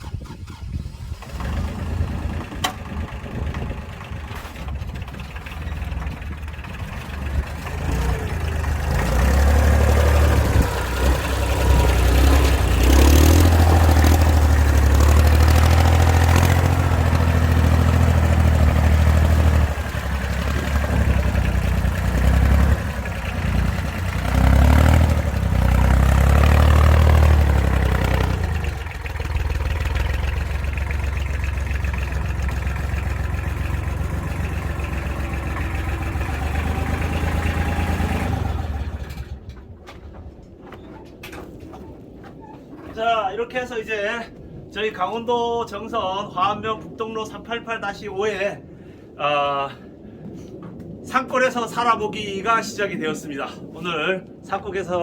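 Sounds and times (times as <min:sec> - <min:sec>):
vehicle engine running: 0:00.0 - 0:39.7.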